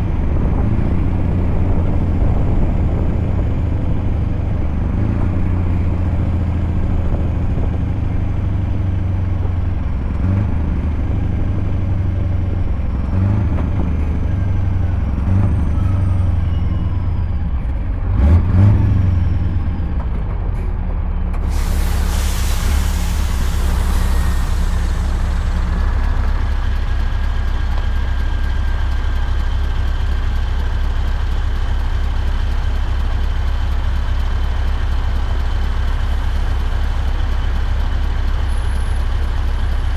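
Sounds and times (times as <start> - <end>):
truck engine droning: 0.0 - 39.9
loud hiss: 21.4 - 27.2.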